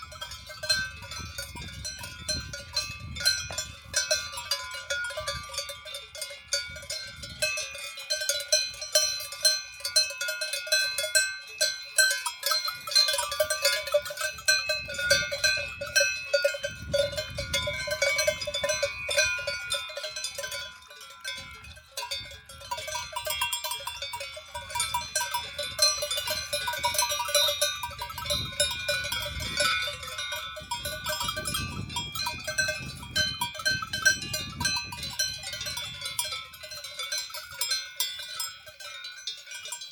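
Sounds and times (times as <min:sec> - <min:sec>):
cowbells clanking: 0:00.0 - 0:39.9.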